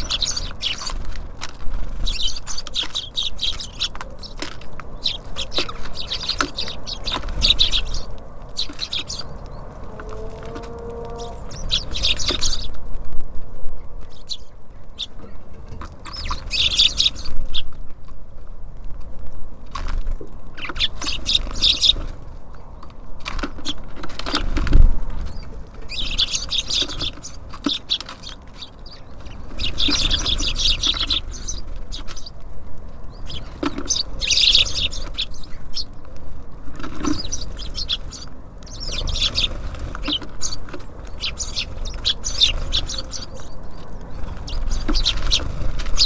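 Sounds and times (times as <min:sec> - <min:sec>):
small songbirds chirping: 0:00.0 - 0:17.9, 0:20.0 - 0:46.0.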